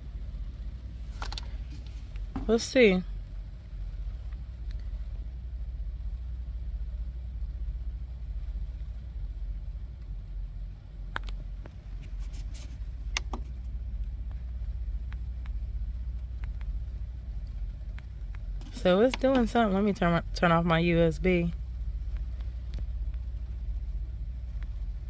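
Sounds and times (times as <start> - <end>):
steady low rumble: 0.0 - 25.0
sharp clicks and taps: 13.1 - 13.5, 17.9 - 19.6.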